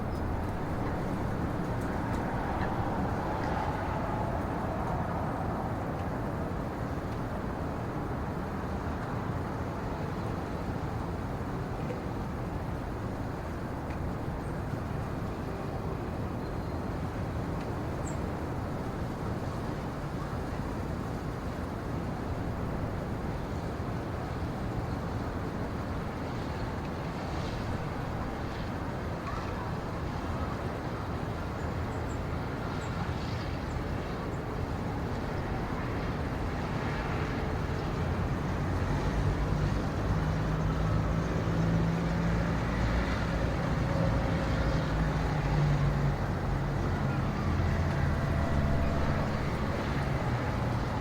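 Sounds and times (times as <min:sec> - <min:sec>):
low rushing noise: 0:46.4 - 0:51.0.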